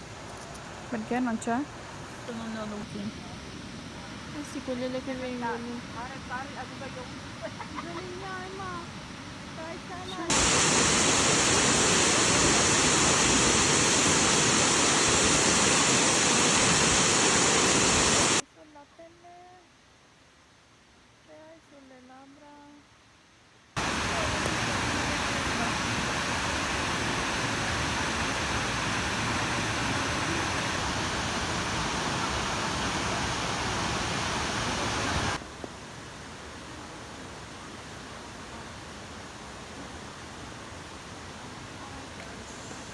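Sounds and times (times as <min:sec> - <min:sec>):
quiet hiss: 0:00.0 - 0:42.9
waterfall roaring: 0:09.6 - 0:18.4, 0:23.8 - 0:35.4.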